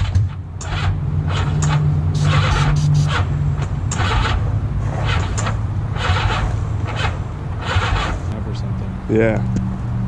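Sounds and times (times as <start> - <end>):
motorcycle engine running roughly: 2.2 - 3.3.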